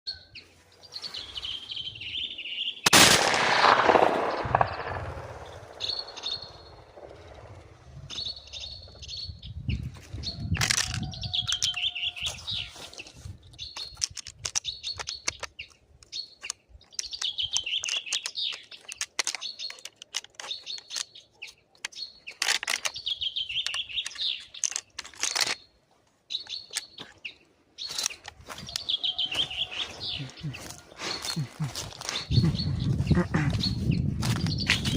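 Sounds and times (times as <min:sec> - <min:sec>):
songbird chirping and trilling: 0:00.1 - 0:02.9, 0:04.0 - 0:34.9
bird's sharp clicks: 0:16.4 - 0:25.6.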